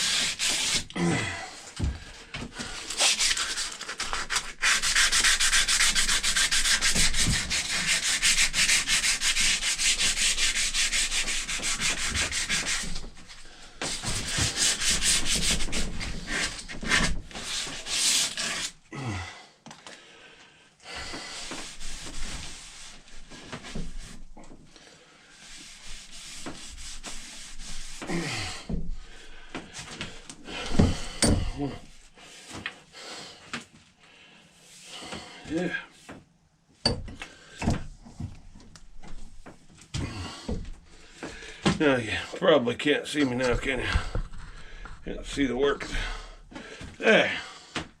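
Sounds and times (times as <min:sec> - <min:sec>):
sandpaper rubbing on wood: 0:00.0 - 0:00.9, 0:02.7 - 0:18.8, 0:21.2 - 0:24.2, 0:25.4 - 0:28.4, 0:43.2 - 0:46.0.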